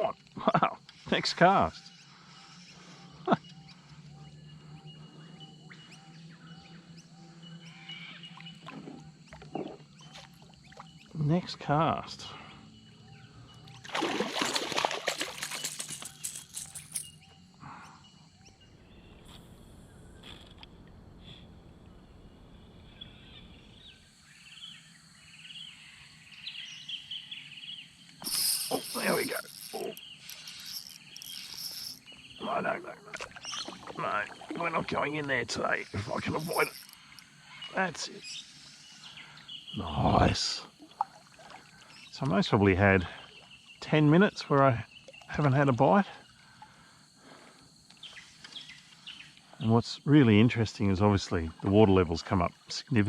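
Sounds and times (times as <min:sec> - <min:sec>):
birds chirping and trilling: 0:00.0 - 0:53.0
high bird chirps: 0:26.4 - 0:32.8, 0:33.4 - 0:39.8.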